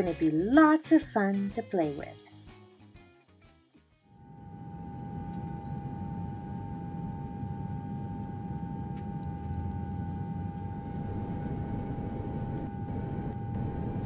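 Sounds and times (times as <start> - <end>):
jet engine rumble and whine: 4.2 - 14.0.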